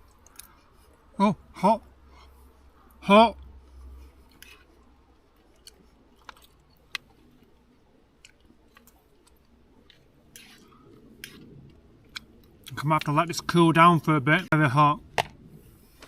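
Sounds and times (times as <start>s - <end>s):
person chewing: 0.0s - 1.1s, 3.6s - 13.2s.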